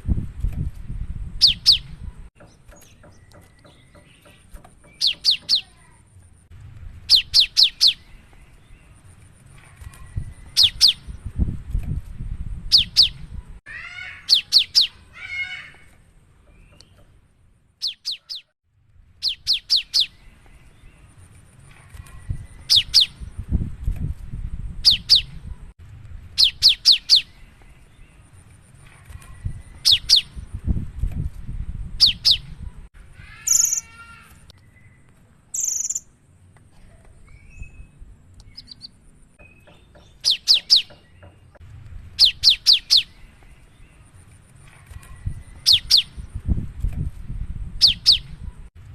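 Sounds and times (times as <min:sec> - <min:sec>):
bird chattering: 0:02.9 - 0:06.0, 0:13.8 - 0:15.7.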